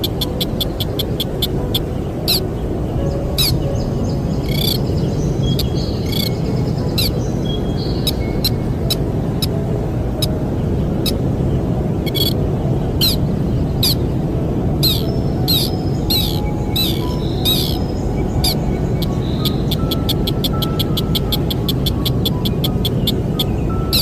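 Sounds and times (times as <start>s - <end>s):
bird sharp high chirps: 4.4s - 4.8s, 5.5s - 6.4s, 7.0s - 8.6s, 12.1s - 12.4s, 14.8s - 24.0s.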